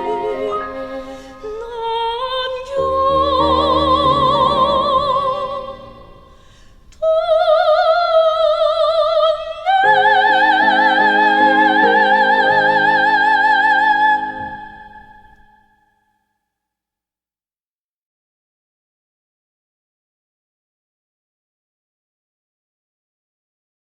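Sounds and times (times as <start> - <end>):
instrumental accompaniment: 0.0 - 2.1, 9.8 - 15.5
soprano singing: 0.0 - 6.4, 7.0 - 15.7.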